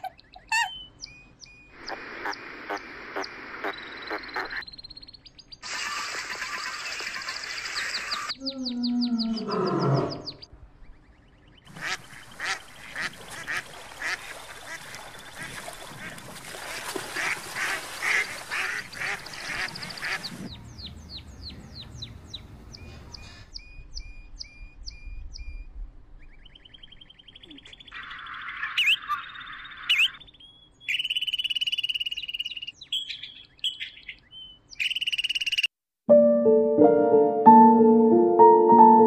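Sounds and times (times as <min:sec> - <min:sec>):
wind: 0:00.0 - 0:35.7
ducks quacking: 0:01.9 - 0:04.6, 0:11.7 - 0:20.5
choppy water: 0:11.7 - 0:20.5.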